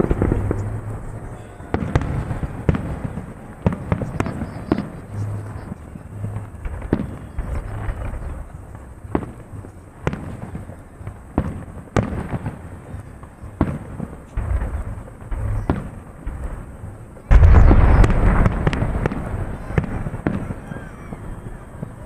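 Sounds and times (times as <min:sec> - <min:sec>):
low rumble: 0:00.0 - 0:03.6, 0:14.4 - 0:20.3
fireworks bangs: 0:00.0 - 0:22.0.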